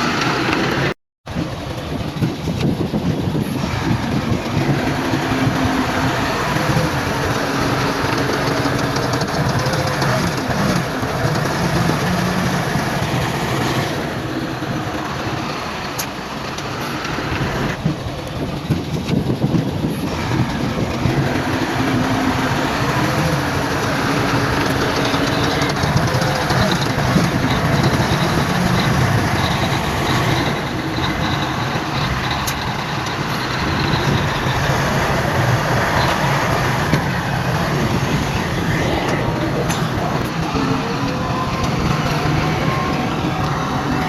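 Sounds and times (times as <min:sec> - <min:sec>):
diesel machinery engine drone: 0:00.0 - 0:44.0.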